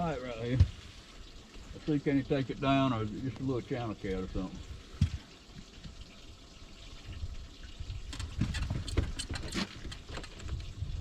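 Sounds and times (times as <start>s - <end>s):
water lapping and sloshing: 4.0s - 11.0s
sharp clicks and knocks: 8.1s - 10.7s.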